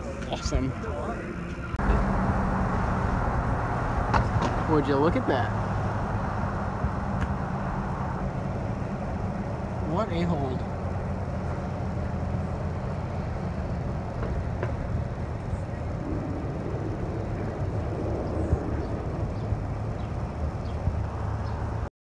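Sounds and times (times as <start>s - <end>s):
roller coaster train rumbling on track: 7.6s - 21.8s.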